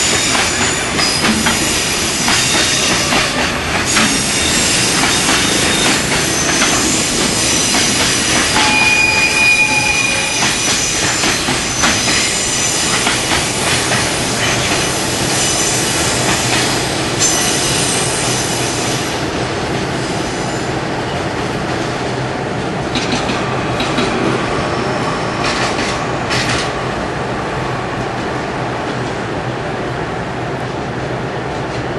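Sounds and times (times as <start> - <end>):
freight train rolling: 0.0 - 31.9
high-pitched wheel squeal: 4.1 - 12.9.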